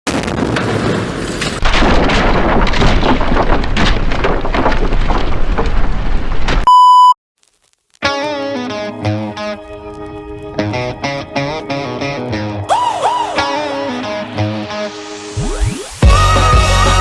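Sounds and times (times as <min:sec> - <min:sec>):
rough crackling noise: 0:00.1 - 0:06.7, 0:07.4 - 0:17.0
loud beep tone: 0:06.7 - 0:07.2
guitar music: 0:08.0 - 0:17.0.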